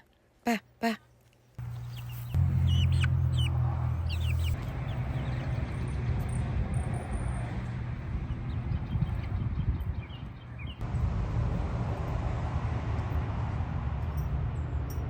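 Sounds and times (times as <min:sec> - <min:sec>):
chickens chirping: 0:01.6 - 0:06.0
low hum: 0:01.6 - 0:15.0.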